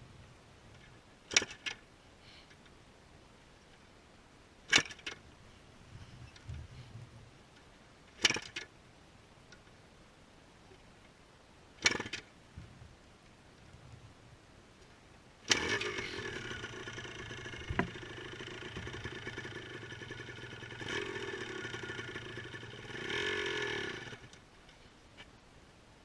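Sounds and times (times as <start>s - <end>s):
motorcycle engine starting and stalling: 1.3s - 1.8s, 4.7s - 5.2s, 8.2s - 8.7s, 11.8s - 12.3s, 15.4s - 24.4s.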